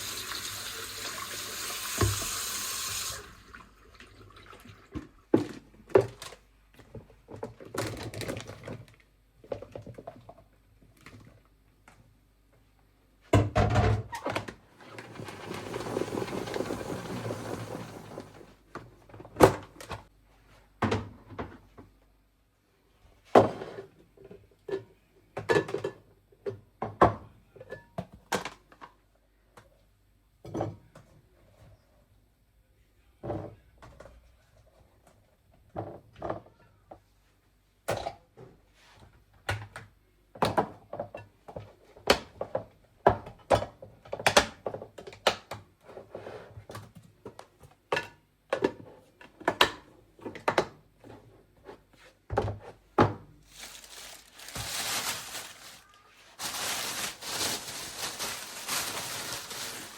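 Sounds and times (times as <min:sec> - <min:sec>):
water running from a tap: 0:00.0 - 0:04.9.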